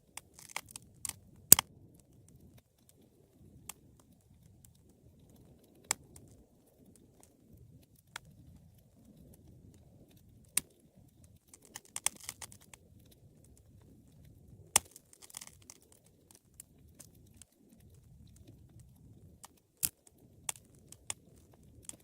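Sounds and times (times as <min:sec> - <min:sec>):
wood fire crackling and popping: 0:00.0 - 0:22.0.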